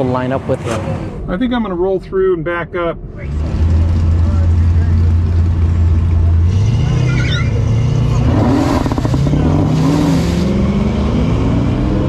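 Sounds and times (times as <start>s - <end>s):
car engine revving: 3.1s - 12.0s.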